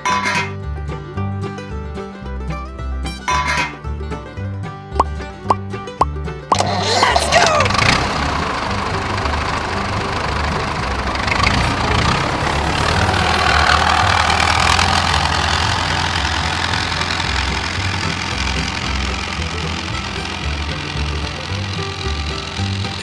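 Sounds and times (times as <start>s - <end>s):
small tractor engine running: 6.5s - 23.0s.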